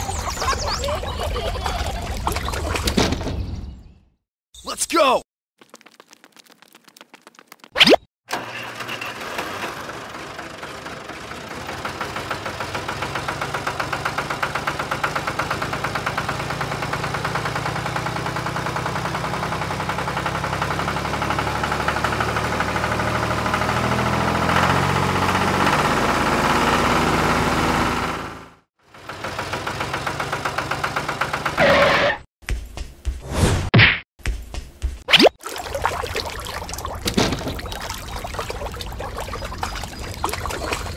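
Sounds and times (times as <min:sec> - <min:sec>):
diesel tractor engine chugging: 0:09.4 - 0:31.7.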